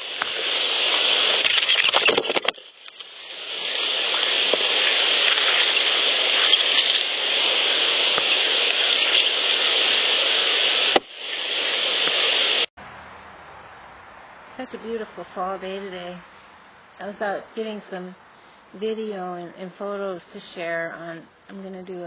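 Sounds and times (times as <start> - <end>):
steady hiss: 0.0 - 12.7.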